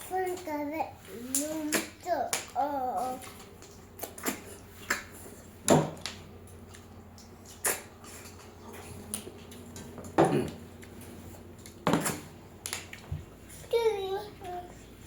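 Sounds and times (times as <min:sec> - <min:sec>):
eating mouth noises: 0:03.2 - 0:05.2, 0:06.7 - 0:10.9.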